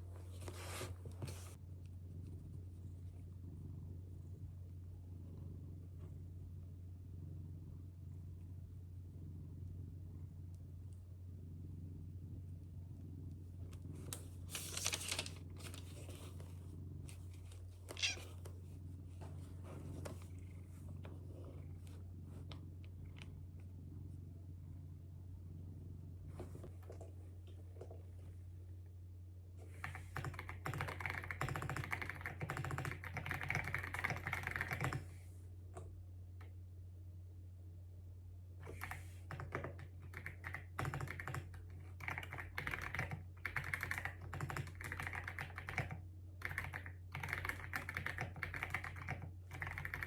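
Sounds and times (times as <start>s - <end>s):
rustling and crinkling: 0.0s - 1.6s, 14.0s - 23.3s
steady low hum: 0.0s - 30.6s
fast typing on keyboard: 29.8s - 35.0s, 38.7s - 50.0s.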